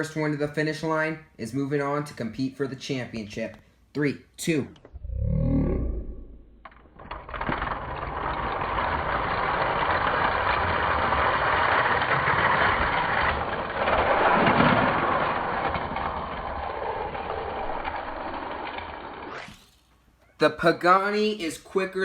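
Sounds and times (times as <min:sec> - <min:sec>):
toy cars rolling down plastic track: 0:06.6 - 0:19.8.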